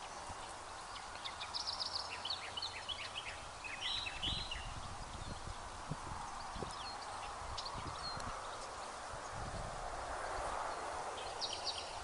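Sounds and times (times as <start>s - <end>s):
birds chattering: 0.0s - 5.7s
wind buffeting microphone: 2.2s - 12.0s.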